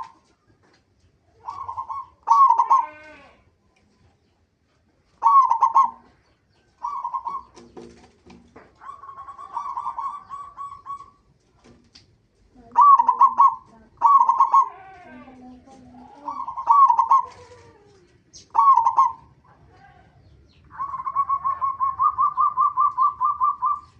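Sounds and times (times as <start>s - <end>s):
dove cooing: 1.3s - 3.2s, 5.2s - 8.0s, 8.7s - 11.3s, 12.6s - 19.6s, 20.7s - 23.9s.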